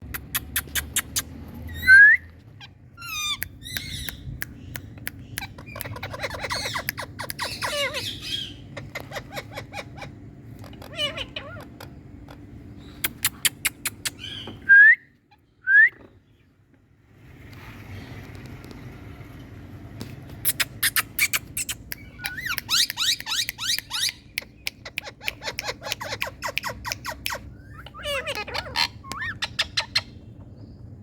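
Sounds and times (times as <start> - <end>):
parakeet chattering: 0.1 - 1.4, 2.6 - 14.5, 20.5 - 30.3
parakeet screeches: 5.8 - 11.7, 24.9 - 30.2.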